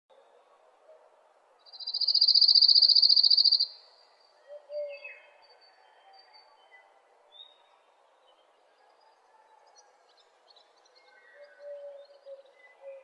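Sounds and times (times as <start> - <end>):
high bird chirps: 1.7 - 3.8
bird trilling: 1.8 - 3.7.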